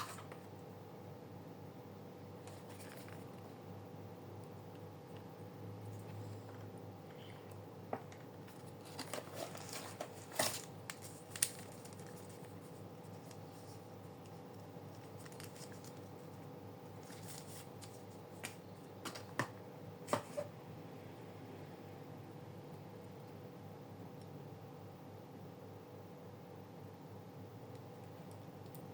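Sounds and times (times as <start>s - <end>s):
faint steady hum: 0.0s - 28.9s
hands handling plastic packaging: 2.4s - 3.5s, 7.9s - 16.4s, 17.0s - 20.5s.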